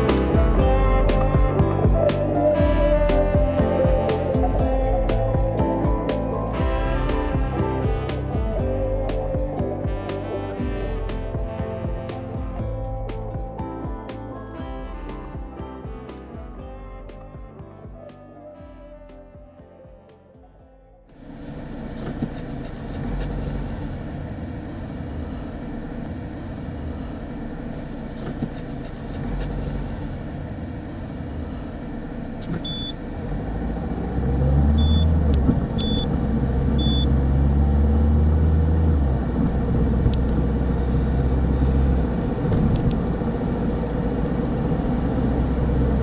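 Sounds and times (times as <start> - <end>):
car road and engine rumble: 20.9 - 46.0
short high beeps: 32.6 - 32.9, 34.8 - 35.1, 35.8 - 36.1, 36.8 - 37.1.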